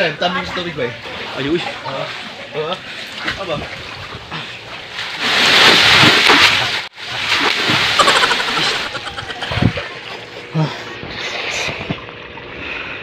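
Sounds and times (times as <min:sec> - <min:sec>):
water splashing in a pool: 0:00.2 - 0:10.5.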